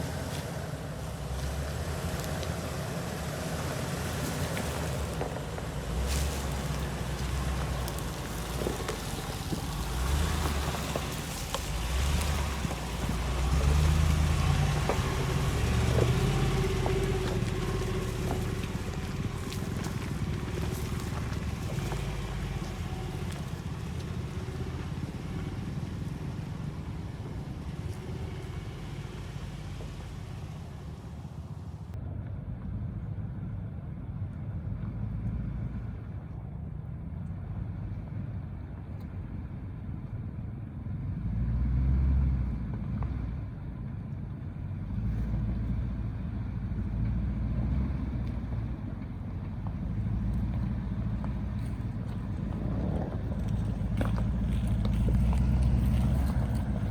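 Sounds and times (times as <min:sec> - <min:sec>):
wind or tyre noise hiss: 0:00.0 - 0:32.0
truck engine rumbling: 0:00.0 - 0:56.9.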